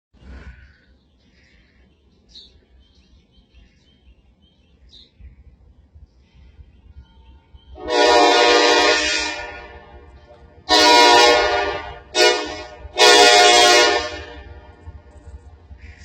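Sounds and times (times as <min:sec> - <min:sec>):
birds chirping faintly: 0:00.2 - 0:08.1
train horn blast: 0:07.8 - 0:15.1.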